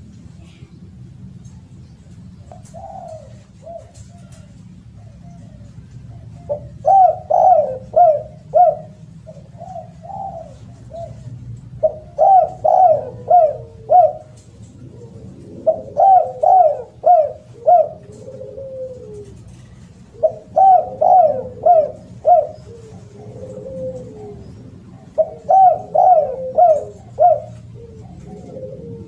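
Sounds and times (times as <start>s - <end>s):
dove cooing: 1.7s - 29.0s.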